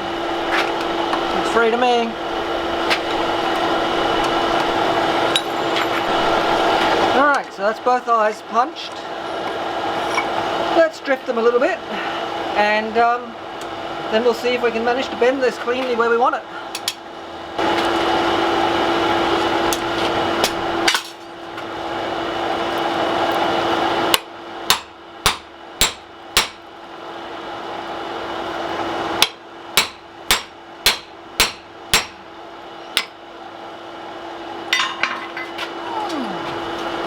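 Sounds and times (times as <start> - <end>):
hammer striking hot steel: 24.1 - 26.7, 29.2 - 33.2.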